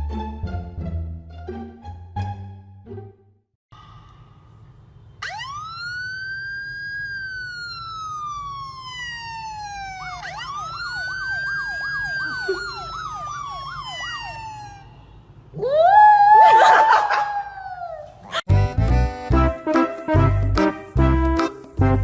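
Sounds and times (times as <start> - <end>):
siren wailing: 5.2 - 18.1.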